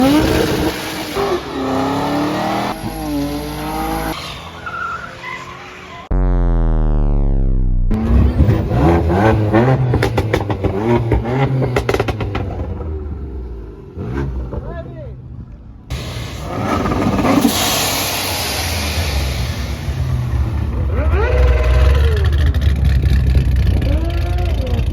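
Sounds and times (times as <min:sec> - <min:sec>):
car engines revving: 0:00.0 - 0:24.9
tyres squealing: 0:02.8 - 0:06.1
exhaust pops and crackles: 0:06.1 - 0:13.2, 0:19.8 - 0:24.9.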